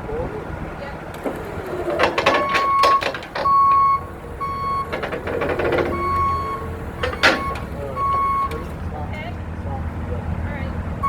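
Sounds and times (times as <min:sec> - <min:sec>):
diesel engine rumble: 0:00.0 - 0:11.0
metallic clanks: 0:01.1 - 0:09.0
excavator alarm beeping: 0:01.2 - 0:09.2.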